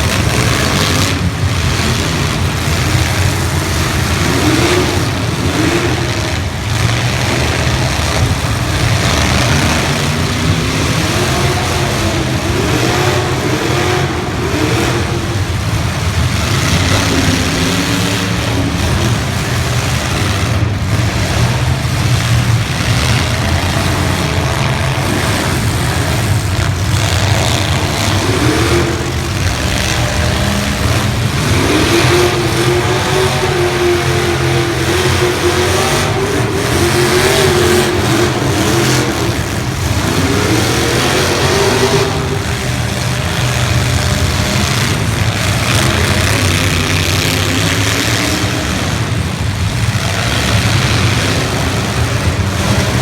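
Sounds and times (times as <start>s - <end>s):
car engines revving: 0.0s - 53.0s.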